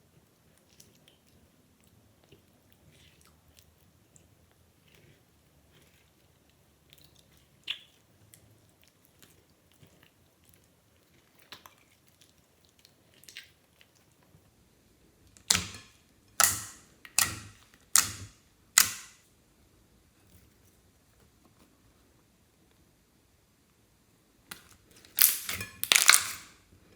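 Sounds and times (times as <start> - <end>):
loud sharp slime pops: 15.4 - 15.8, 16.4 - 19.2, 24.5 - 26.5.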